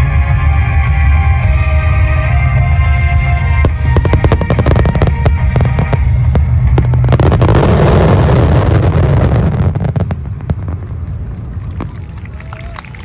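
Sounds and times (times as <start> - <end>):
fireworks bursts and booms: 2.0 - 12.4
fireworks crackle: 3.6 - 13.0.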